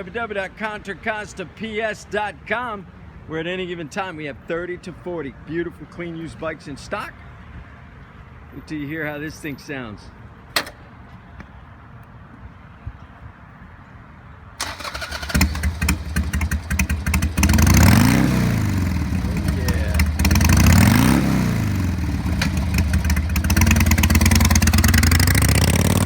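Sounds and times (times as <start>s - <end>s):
motorcycle engine revving: 14.6s - 26.0s
motorcycle starter cranking: 14.6s - 26.0s.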